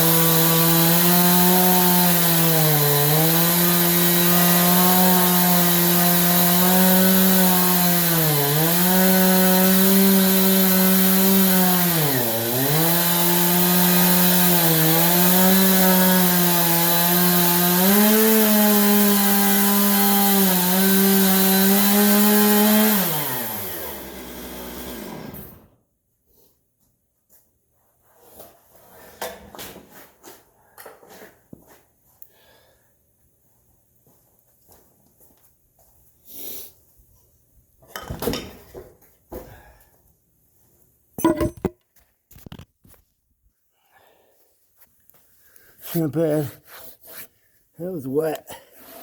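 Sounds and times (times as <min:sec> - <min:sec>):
chainsaw cutting log: 0:00.0 - 0:25.8.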